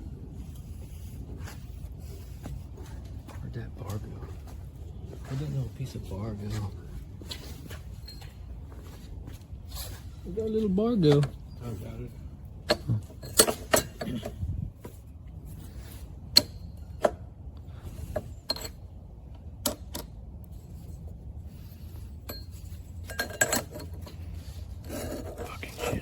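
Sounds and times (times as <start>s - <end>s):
low steady hum: 0.0s - 26.0s
metallic clinks and clanks: 12.6s - 14.4s, 18.1s - 18.9s, 22.2s - 24.3s.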